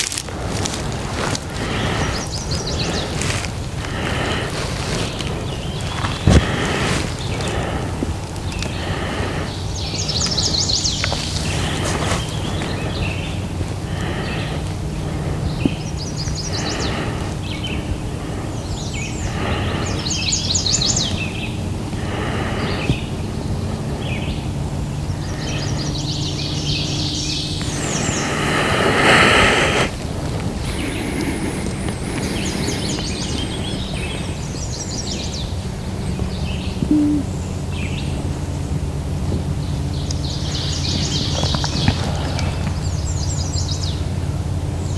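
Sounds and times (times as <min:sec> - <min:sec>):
low background rumble: 0:00.0 - 0:44.9
songbird singing: 0:00.0 - 0:44.9
low hoot-like note: 0:36.8 - 0:37.6.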